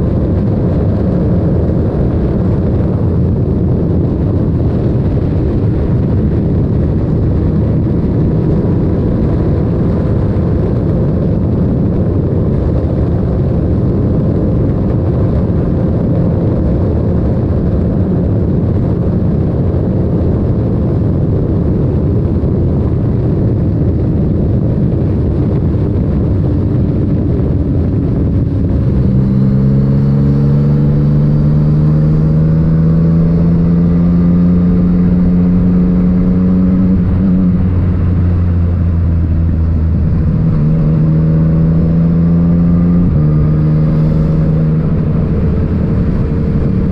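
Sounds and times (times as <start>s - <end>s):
wind noise: 0.0s - 46.9s
motorcycle engine: 27.2s - 46.9s.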